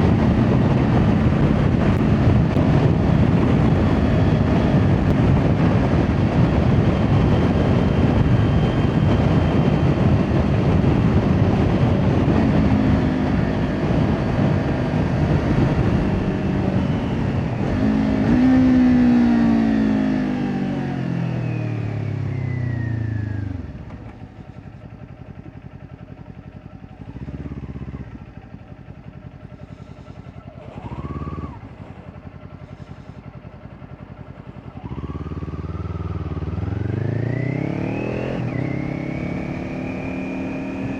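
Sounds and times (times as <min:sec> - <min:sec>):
wind rush over microphone: 0:00.0 - 0:19.9
motorcycle engine: 0:00.0 - 0:40.9.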